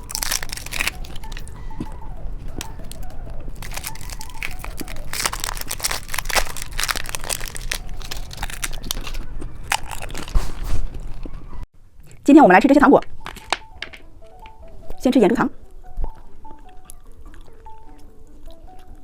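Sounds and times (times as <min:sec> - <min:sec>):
plastic wrapper crinkling and tearing: 0:00.0 - 0:11.6.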